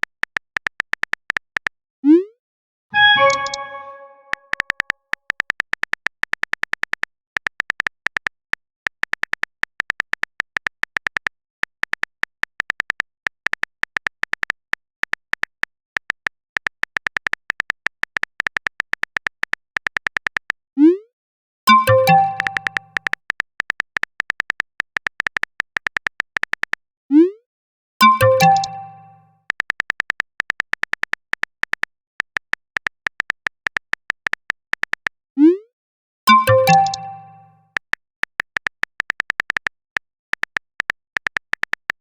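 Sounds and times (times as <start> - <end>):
phone keyboard typing clicks: 0.0 - 1.8, 3.0 - 20.6, 21.7 - 26.8, 28.0 - 35.2, 36.3 - 42.0
message notification chime: 3.0 - 4.6, 21.7 - 22.9, 28.0 - 29.2, 36.3 - 37.6.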